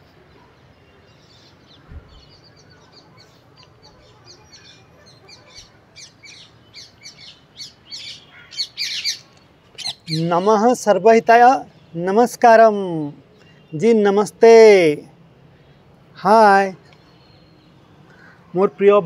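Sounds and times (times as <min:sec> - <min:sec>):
small birds chirping: 0:00.0 - 0:14.4, 0:15.5 - 0:19.0.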